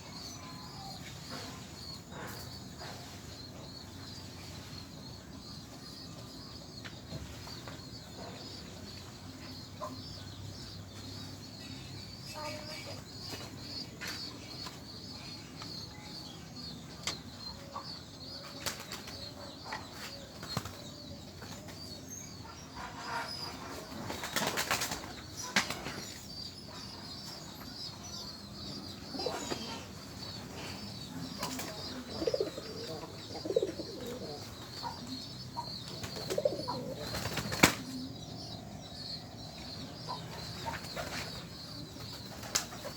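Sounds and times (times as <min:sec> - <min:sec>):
pigeons flapping wings: 0:24.1 - 0:25.8, 0:37.0 - 0:37.9
low pigeon calls: 0:29.1 - 0:35.2, 0:35.8 - 0:38.7.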